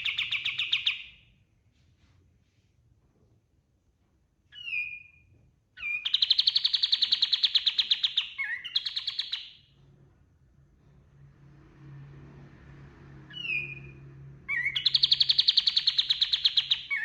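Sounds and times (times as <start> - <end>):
songbird call and trill: 5.8 - 9.6, 14.5 - 17.0.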